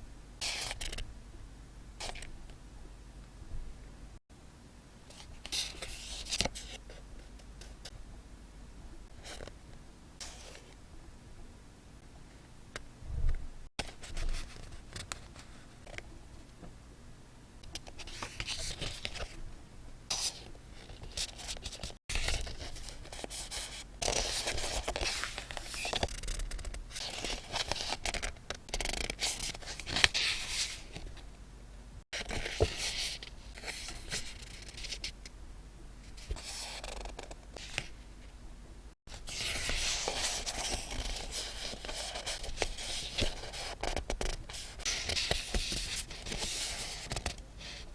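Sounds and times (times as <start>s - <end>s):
paper rustling and scraping: 20.1s - 26.3s, 26.9s - 31.2s, 32.2s - 35.1s, 39.1s - 47.9s.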